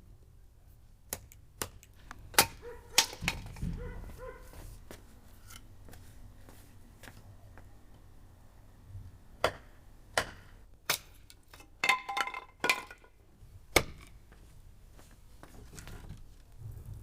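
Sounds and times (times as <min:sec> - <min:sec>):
sharp knocks of chopping wood: 0:09.4 - 0:11.1, 0:13.7 - 0:14.1.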